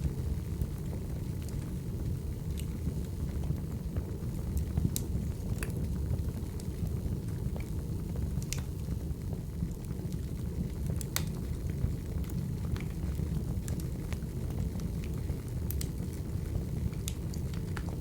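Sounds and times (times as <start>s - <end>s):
low rumble of flames: 0.0s - 18.0s
wood fire crackling pops: 0.0s - 18.0s.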